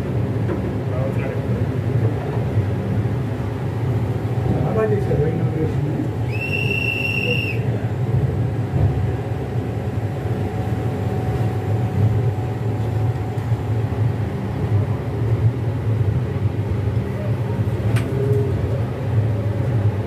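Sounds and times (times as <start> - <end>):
train coach rumbling: 0.0 - 20.0
shrill whistle-like tone: 6.2 - 7.7.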